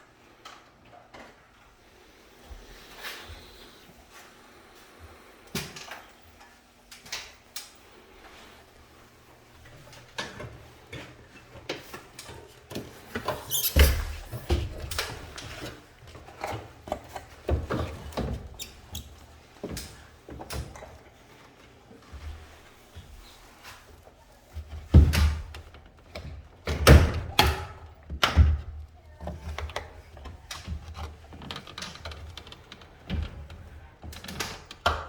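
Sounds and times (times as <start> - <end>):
plastic panels clicking and rattling: 24.6 - 35.0.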